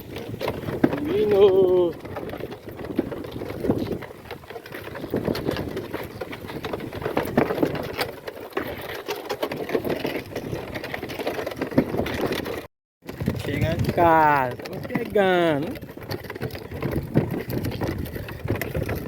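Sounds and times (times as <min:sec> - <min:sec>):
cart rattling and clattering: 0:00.0 - 0:19.0.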